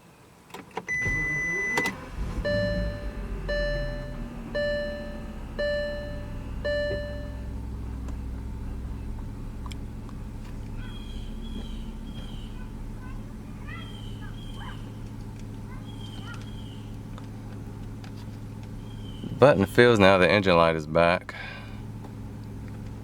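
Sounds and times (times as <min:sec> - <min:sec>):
car engine starting and idling: 0:00.4 - 0:23.0
steady beep: 0:00.9 - 0:07.5
dashboard warning chimes: 0:00.9 - 0:07.7.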